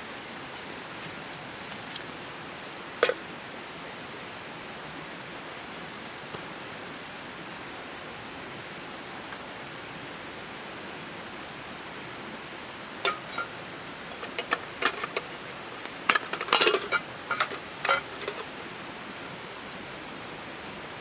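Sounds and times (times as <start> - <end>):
steady hiss: 0.0 - 21.0
metal cookware clinking: 13.0 - 18.8.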